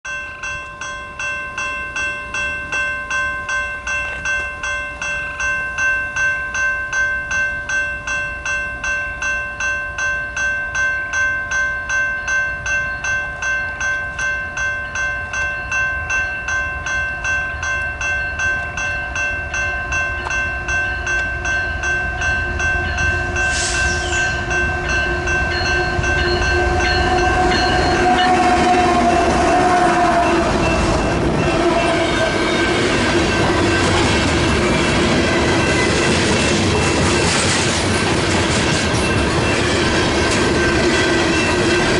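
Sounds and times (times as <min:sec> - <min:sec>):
crossing warning bell ringing: 0:00.0 - 0:41.9
freight train passing: 0:00.1 - 0:41.9
train wheels clattering on rails: 0:20.0 - 0:41.9
train horn: 0:22.7 - 0:35.8.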